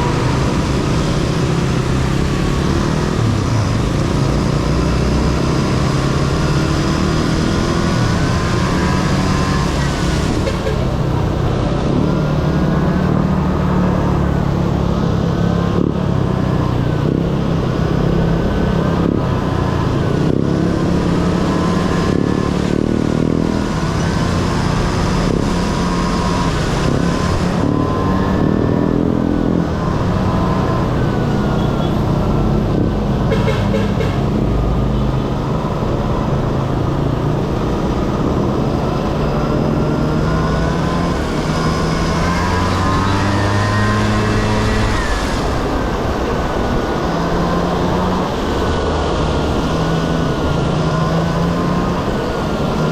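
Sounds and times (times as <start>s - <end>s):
scooter engine revving: 35.6s - 52.9s.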